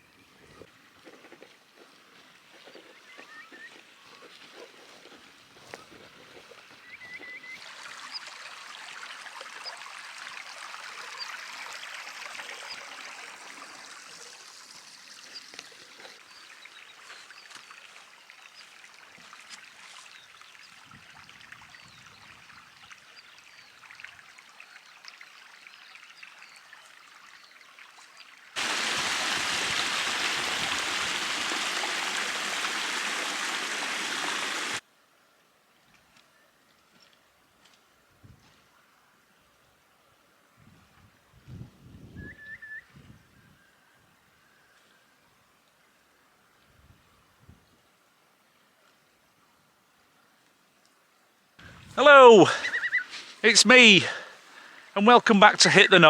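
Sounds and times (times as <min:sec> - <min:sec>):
stream water running: 0:00.7 - 0:34.8, 0:51.6 - 0:56.0
close rush of water: 0:07.2 - 0:22.0, 0:23.1 - 0:34.8, 0:51.6 - 0:56.0.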